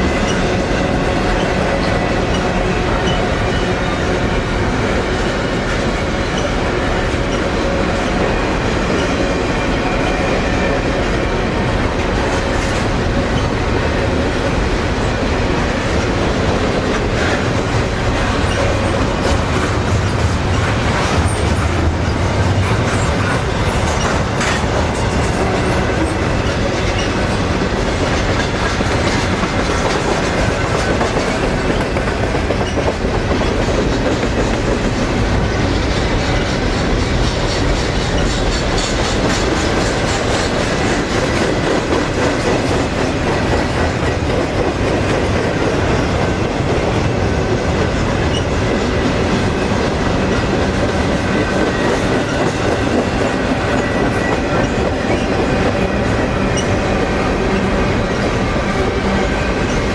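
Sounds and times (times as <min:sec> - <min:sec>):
freight train rolling past: 0:00.0 - 0:59.9
train wheel clicks: 0:15.9 - 0:35.1.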